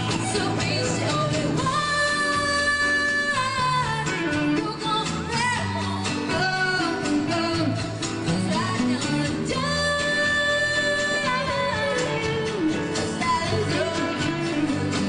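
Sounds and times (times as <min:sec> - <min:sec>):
bass: 0:00.0 - 0:15.0
drums: 0:00.0 - 0:15.0
guitar: 0:00.0 - 0:15.0
person singing: 0:00.0 - 0:15.0.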